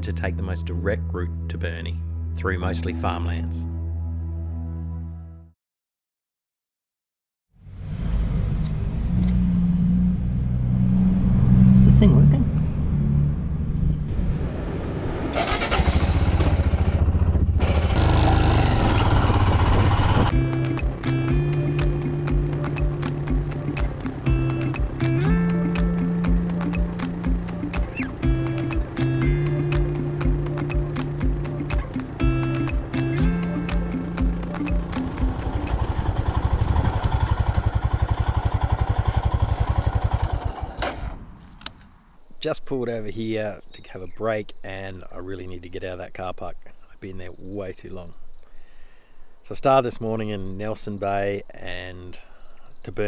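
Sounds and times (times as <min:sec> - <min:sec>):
motorcycle engine running: 0:15.5 - 0:41.1
click: 0:41.5 - 0:41.9.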